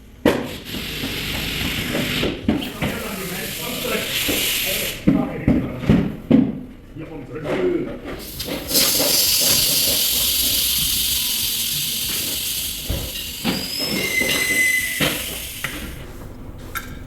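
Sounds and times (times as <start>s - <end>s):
compressed air hissing: 0.4s - 5.1s, 8.2s - 16.4s
short squeal: 8.8s - 16.0s.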